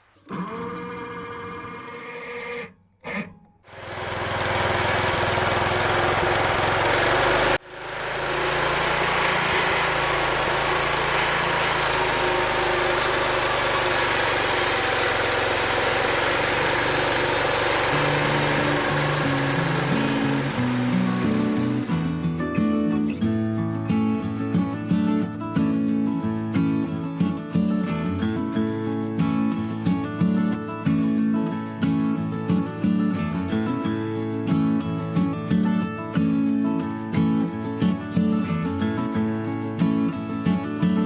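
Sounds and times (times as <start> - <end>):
band saw cutting log: 3.7 - 23.3
engine running: 3.7 - 24.2.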